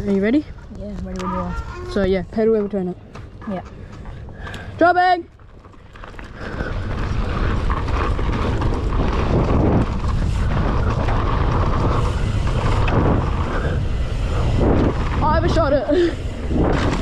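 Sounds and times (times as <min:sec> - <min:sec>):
tyres rumbling on dirt: 0:01.9 - 0:17.0
wind noise on microphone: 0:06.3 - 0:17.0.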